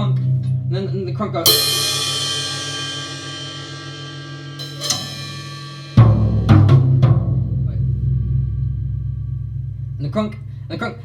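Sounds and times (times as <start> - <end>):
music with drums and bass: 1.4 - 10.8
sharp drum hits: 1.5 - 9.5.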